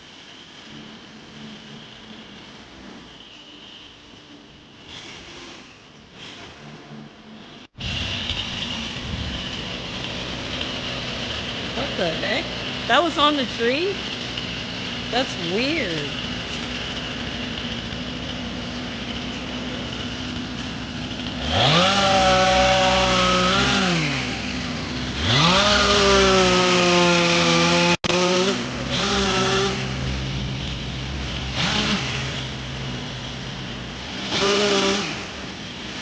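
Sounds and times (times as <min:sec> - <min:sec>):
chainsaw idling and revving: 0:07.8 - 0:36.0.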